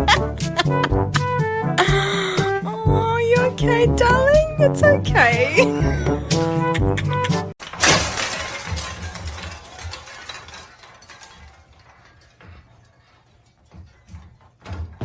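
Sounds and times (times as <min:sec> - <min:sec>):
object shattering: 0:07.6 - 0:12.4
pieces clinking and clattering: 0:07.6 - 0:14.2.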